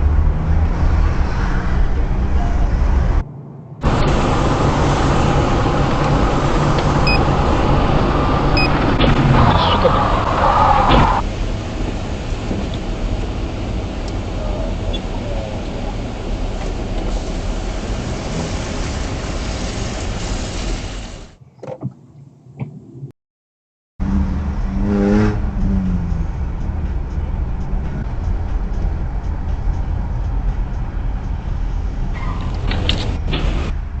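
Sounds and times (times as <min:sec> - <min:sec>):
car road and engine noise: 0:00.0 - 0:23.1, 0:24.0 - 0:34.0.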